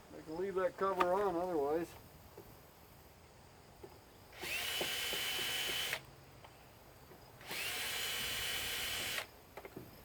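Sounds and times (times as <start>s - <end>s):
cordless drill whining: 4.4s - 6.0s, 7.4s - 9.3s.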